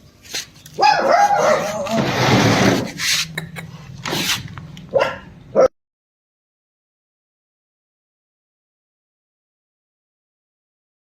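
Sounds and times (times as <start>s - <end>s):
loud scuffling: 0.2s - 3.4s
puppies whimpering and yelping: 0.8s - 2.2s.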